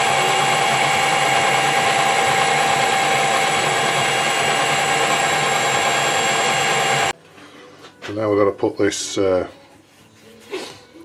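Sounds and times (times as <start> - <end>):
lathe gear whine: 0.0 - 7.2.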